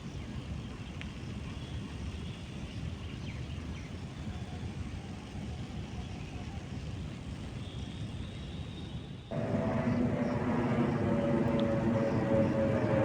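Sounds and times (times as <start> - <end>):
low outdoor rumble: 9.3 - 13.0
thin high whine: 9.3 - 13.0.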